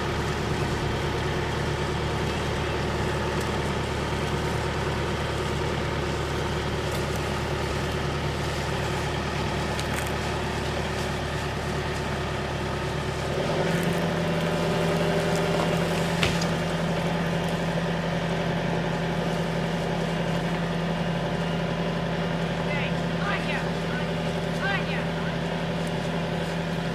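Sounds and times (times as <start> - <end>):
tractor engine running: 0.0 - 26.9.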